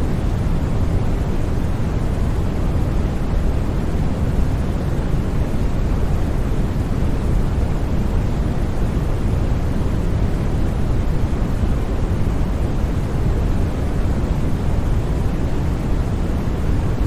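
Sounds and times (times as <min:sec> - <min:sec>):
deep white noise: 0:00.0 - 0:17.0.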